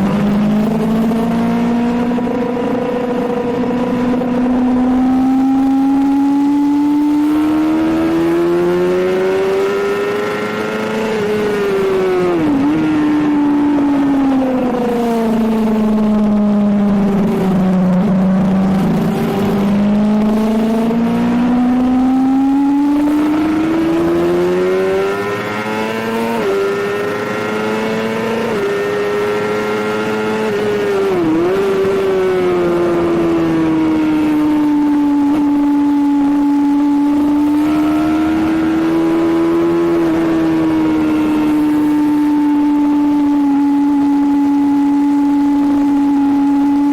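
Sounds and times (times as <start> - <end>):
sport bike engine revving: 0.0 - 46.9.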